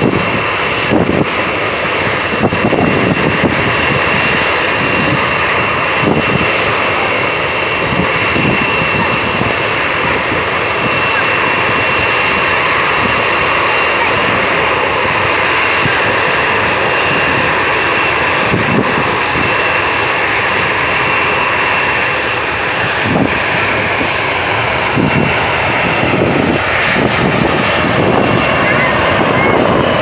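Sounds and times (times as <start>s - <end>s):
jet engines running: 0.0s - 30.0s.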